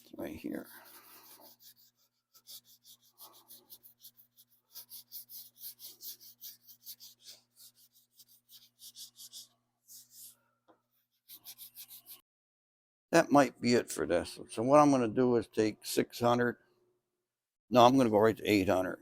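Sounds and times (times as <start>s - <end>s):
sandpaper rubbing on car body: 0.6s - 10.2s.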